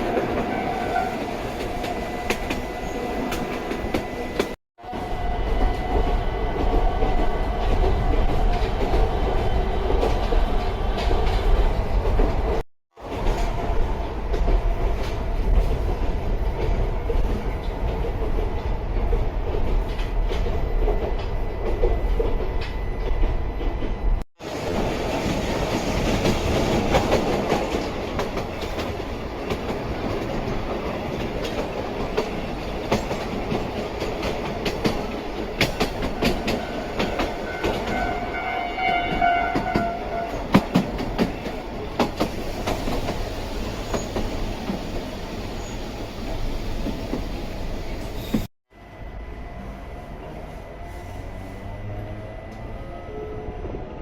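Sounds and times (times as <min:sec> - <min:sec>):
high whine of steady tones: 0:48.7 - 0:50.8.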